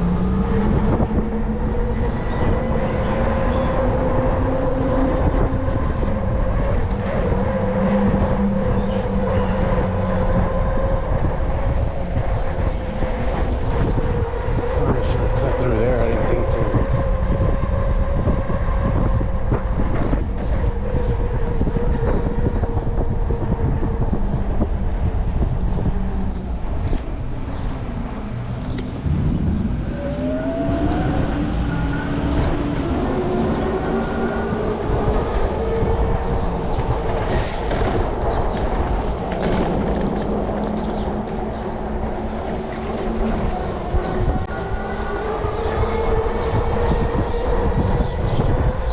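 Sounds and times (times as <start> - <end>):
e-bike hub motor whine: 0.0 - 48.9
wind rumble on microphone: 0.0 - 48.9
bike rattles and clicks: 32.2 - 44.4.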